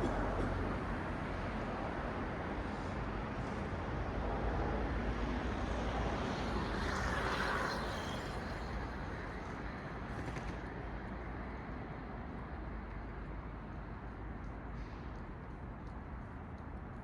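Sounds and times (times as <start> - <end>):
steady traffic hum: 0.0 - 17.0
car passing by: 5.1 - 9.6.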